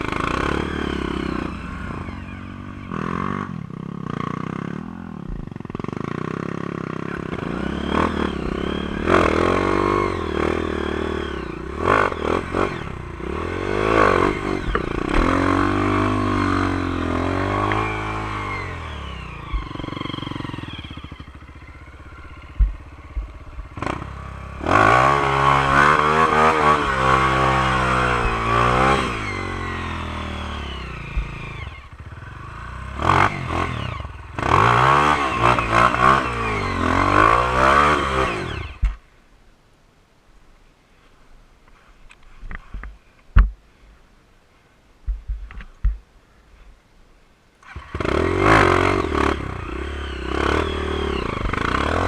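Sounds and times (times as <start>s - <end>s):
motorbike engine revving: 0.0s - 39.0s, 47.6s - 52.0s
sharp knocks: 43.4s - 43.6s.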